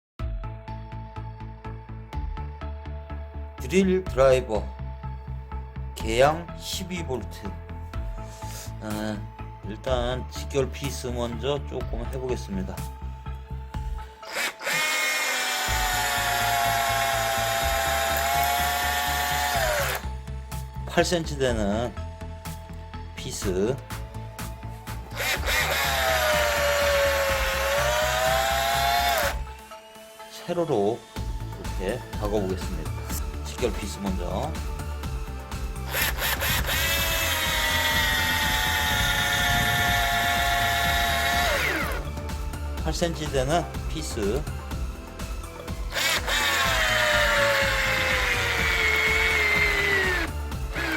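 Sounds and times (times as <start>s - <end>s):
background music with steady beat: 0.2s - 50.9s
cordless drill motor whining: 14.0s - 20.2s, 25.0s - 33.4s, 35.8s - 42.2s, 45.6s - 50.9s.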